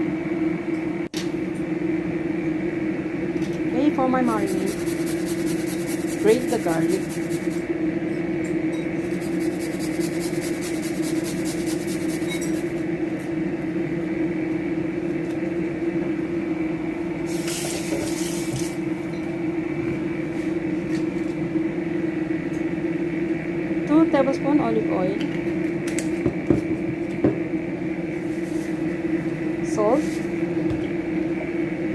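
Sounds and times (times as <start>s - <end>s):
steady low hum: 0.0s - 31.9s
garlic scraping on metal grater: 4.4s - 7.6s, 9.1s - 12.7s.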